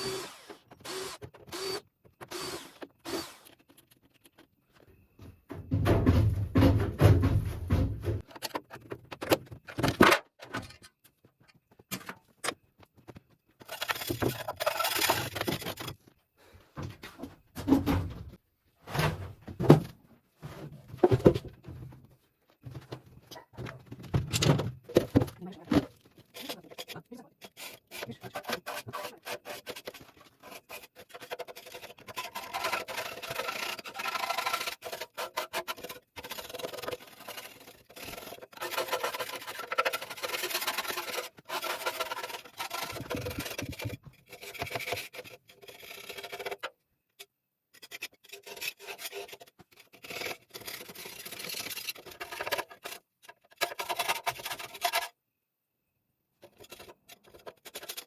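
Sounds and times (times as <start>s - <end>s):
knocks and thunks on metal boiler: 5.5s - 8.2s
scraping on boiler: 26.2s - 46.4s.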